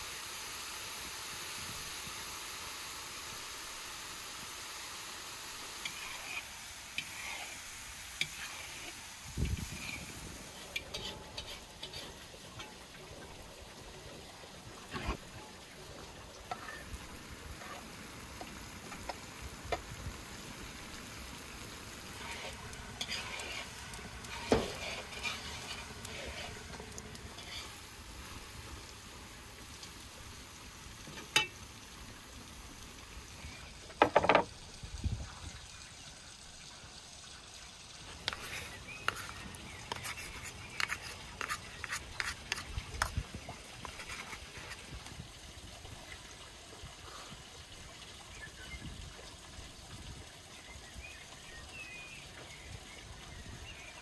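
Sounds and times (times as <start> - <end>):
vegetables and meat sizzling: 0.0 - 36.6, 37.8 - 47.4, 50.0 - 54.0
wooden spoon in wooden bowl: 5.8 - 7.6, 8.2 - 12.8, 22.1 - 27.8, 38.3 - 44.8
metal spatula scraping pot: 5.8 - 12.8, 16.5 - 17.0, 22.0 - 27.9, 38.3 - 43.2, 43.8 - 44.8.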